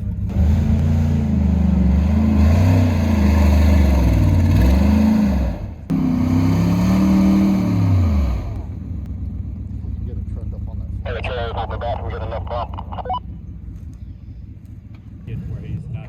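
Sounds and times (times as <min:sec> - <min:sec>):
engine revving hard: 0:00.0 - 0:08.8.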